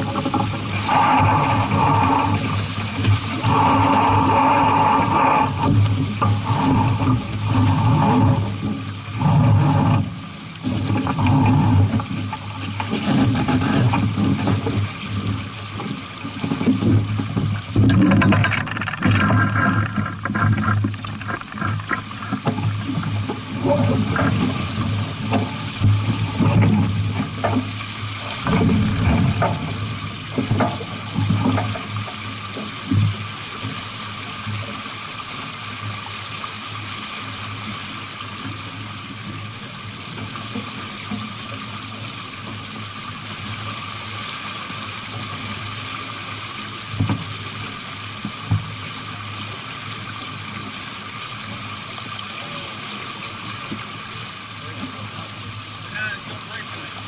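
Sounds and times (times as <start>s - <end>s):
water rushing past hull: 0.0s - 57.0s
knocks and thumps: 16.3s - 27.7s.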